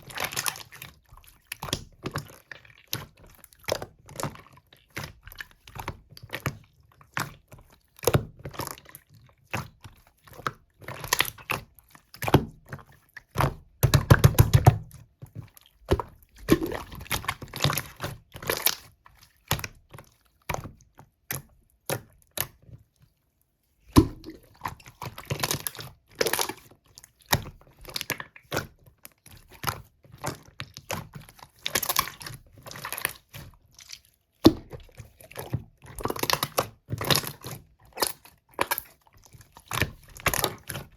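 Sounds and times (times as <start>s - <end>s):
slime squishing with sticky clicks: 0.0s - 23.2s, 23.8s - 40.9s
slime air pockets popping: 13.8s - 14.9s, 23.9s - 24.4s.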